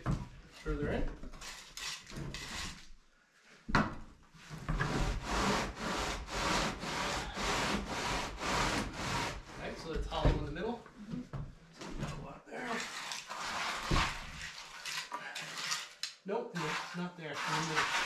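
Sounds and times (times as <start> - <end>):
tool rubbing wet concrete: 4.9 - 9.6, 12.7 - 18.0.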